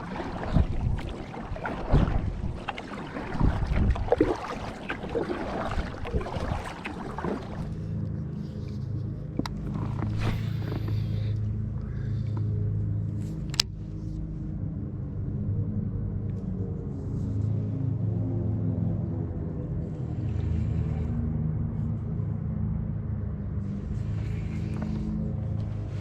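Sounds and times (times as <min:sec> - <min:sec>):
wind noise on microphone: 0:00.0 - 0:06.8
water splashing from paddling: 0:00.0 - 0:11.3
background music with drone: 0:00.0 - 0:26.0.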